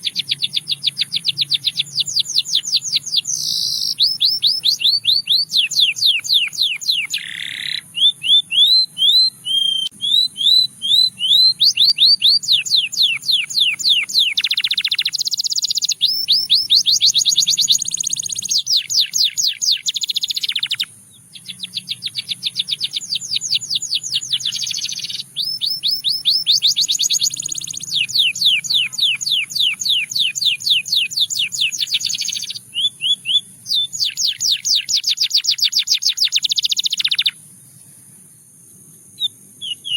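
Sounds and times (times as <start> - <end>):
canary singing trills: 0.0 - 38.2, 38.8 - 39.9.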